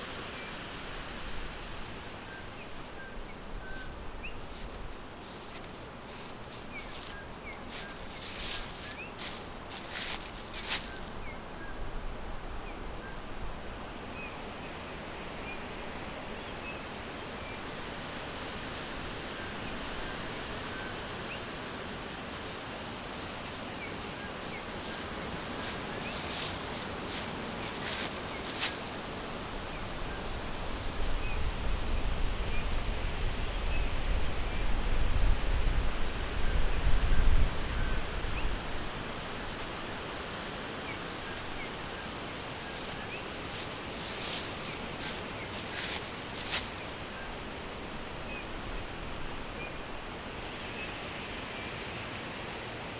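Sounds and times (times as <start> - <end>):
crackling rustle: 0.0 - 11.6, 18.6 - 29.5, 37.4 - 49.7
wind in trees: 0.0 - 52.9.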